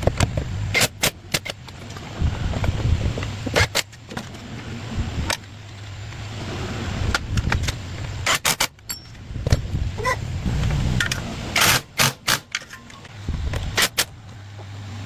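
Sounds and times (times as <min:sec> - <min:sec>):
uneven low rumble: 0:09.4 - 0:11.6.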